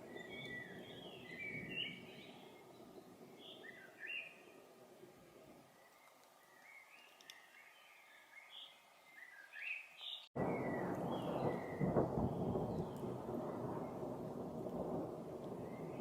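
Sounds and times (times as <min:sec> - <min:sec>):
songbirds chirping: 0:00.0 - 0:16.0
rolling thunder rumble: 0:10.4 - 0:16.0.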